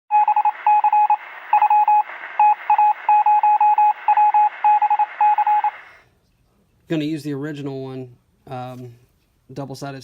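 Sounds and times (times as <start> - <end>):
electronic beeping: 0.1 - 6.0
steady radio hiss: 0.4 - 10.0.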